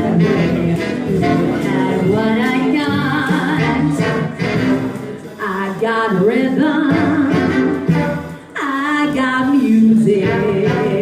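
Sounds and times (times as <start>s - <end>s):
two voices singing in harmony: 0.0s - 4.8s
backing music: 0.0s - 11.0s.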